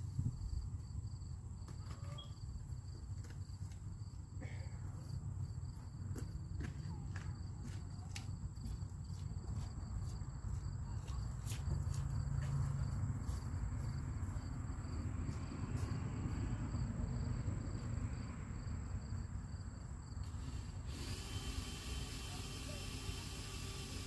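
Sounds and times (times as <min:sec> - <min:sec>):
faint insect trill: 0:00.0 - 0:06.3, 0:12.0 - 0:24.0.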